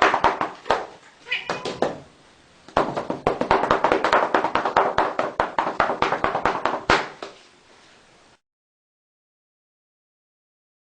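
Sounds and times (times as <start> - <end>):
hand tapping quickly: 0.0 - 2.0, 2.7 - 7.4.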